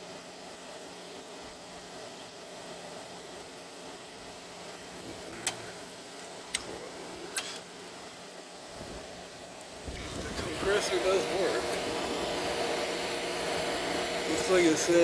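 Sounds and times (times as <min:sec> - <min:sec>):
air conditioner fan noise: 0:00.0 - 0:15.0
low compressor hum: 0:08.8 - 0:15.0.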